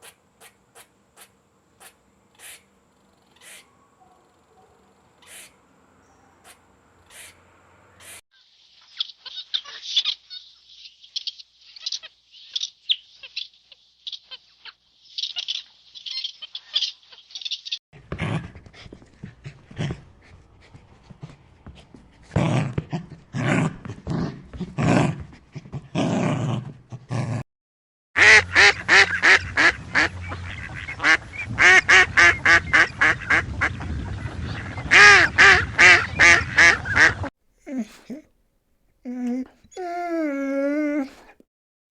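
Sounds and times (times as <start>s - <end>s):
ducks quacking: 28.2s - 37.3s.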